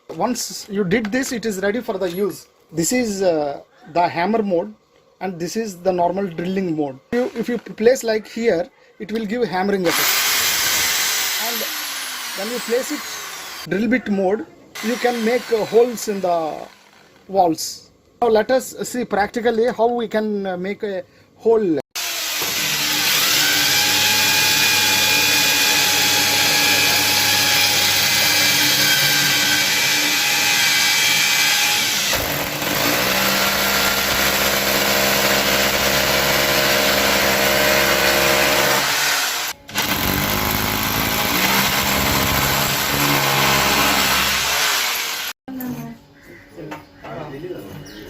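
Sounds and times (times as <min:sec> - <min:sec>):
hammer drill drilling into concrete: 0:09.9 - 0:13.7, 0:14.8 - 0:17.1, 0:22.0 - 0:45.4.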